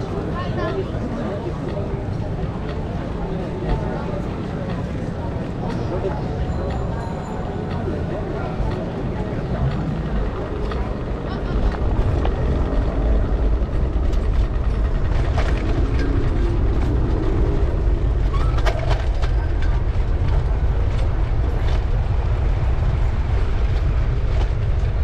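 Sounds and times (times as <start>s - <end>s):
faint city street noise: 0.0s - 25.0s
wind buffeting microphone: 8.1s - 25.0s.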